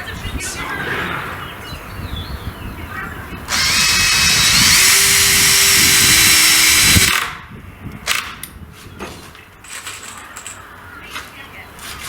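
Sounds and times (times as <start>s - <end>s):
power drill driving bolt: 3.5s - 7.4s.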